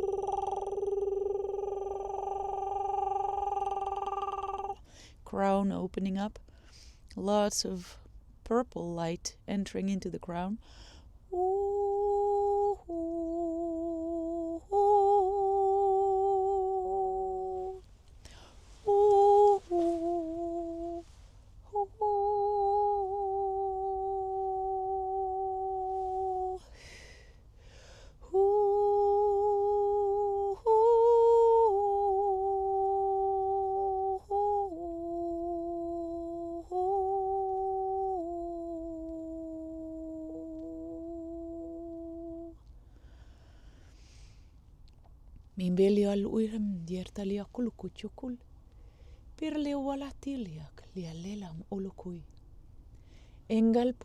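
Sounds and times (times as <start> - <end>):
woman humming: 0.0 - 4.8, 11.3 - 17.8, 18.8 - 27.1, 28.2 - 42.6
in-breaths: 4.8 - 5.3, 6.4 - 7.1, 10.6 - 11.2, 18.2 - 18.9, 26.6 - 28.3, 42.8 - 44.7, 48.7 - 49.4, 52.9 - 53.5.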